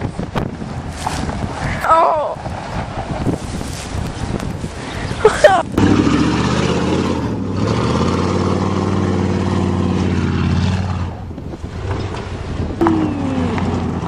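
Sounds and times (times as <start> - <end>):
truck engine revving high: 5.7 - 14.0.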